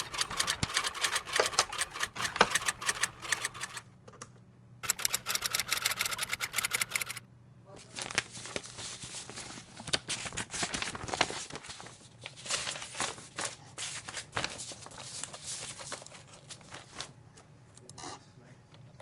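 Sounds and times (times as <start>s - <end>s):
keyboard typing: 0.0s - 3.8s, 4.8s - 7.2s.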